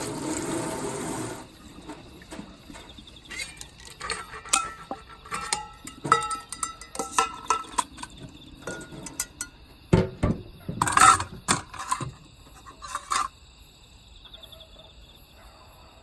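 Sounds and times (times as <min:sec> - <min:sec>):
metal cookware clinking: 0:01.7 - 0:13.3.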